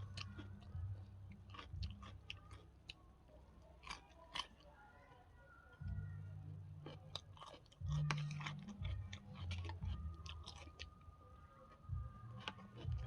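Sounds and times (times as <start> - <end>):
low hum: 0.0 - 4.2, 5.7 - 13.0
person chewing food: 0.0 - 13.0.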